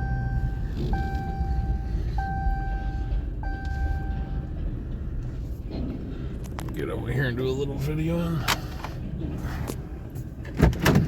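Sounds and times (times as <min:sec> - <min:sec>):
railroad crossing bell: 0:01.2 - 0:04.6.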